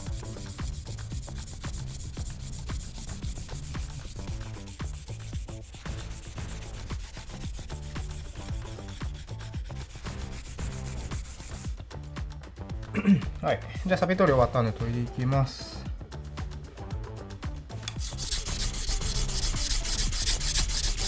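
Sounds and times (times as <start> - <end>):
rust eraser rubbing on steel blade: 0.0 - 11.7, 17.9 - 21.0.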